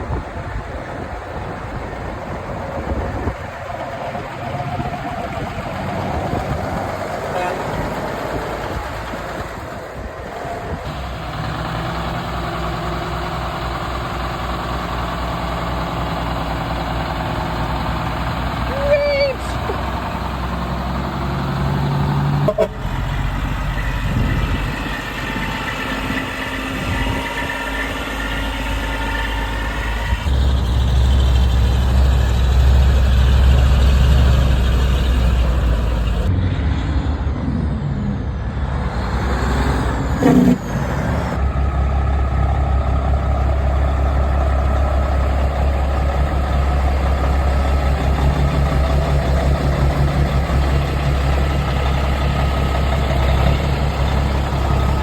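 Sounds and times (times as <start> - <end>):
truck diesel engines running: 0.0 - 55.0
truck horn toot: 7.2 - 8.1, 22.4 - 26.0, 40.2 - 41.0.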